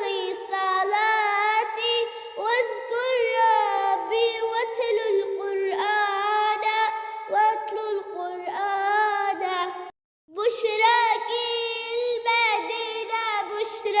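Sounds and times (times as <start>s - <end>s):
child singing: 0.0s - 14.0s.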